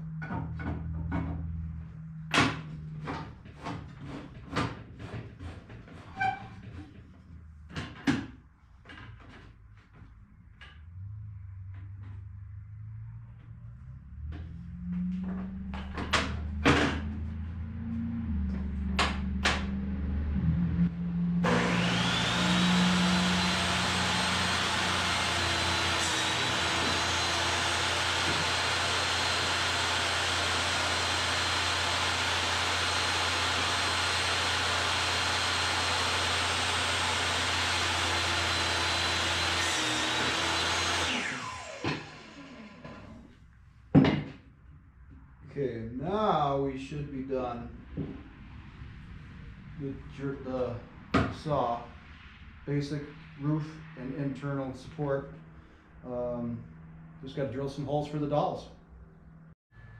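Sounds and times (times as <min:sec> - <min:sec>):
low hum: 0:10.6 - 0:23.9
power tool motor whining: 0:21.4 - 0:43.2.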